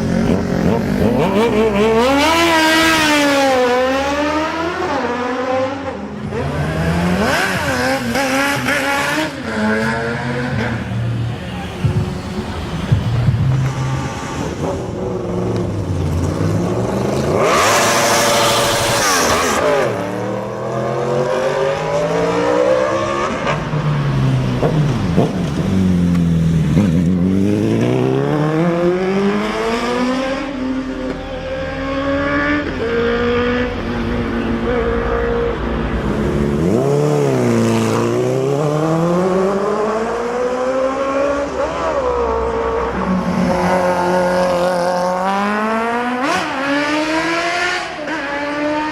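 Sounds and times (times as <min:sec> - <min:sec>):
motorcycle engine revving: 0:00.0 - 0:10.8, 0:24.2 - 0:42.7, 0:43.5 - 0:48.9.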